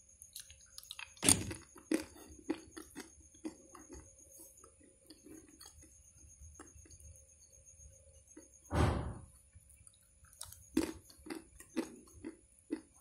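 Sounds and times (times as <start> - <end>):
person chewing crunchy nuts: 0.0 - 7.1, 9.7 - 13.0.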